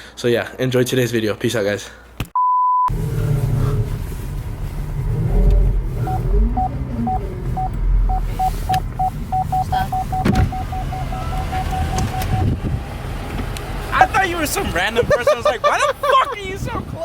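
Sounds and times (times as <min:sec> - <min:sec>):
car engine and road rumble: 0:02.9 - 0:17.0
parking sensor beeping: 0:06.0 - 0:12.6
steady beep: 0:06.1 - 0:12.5.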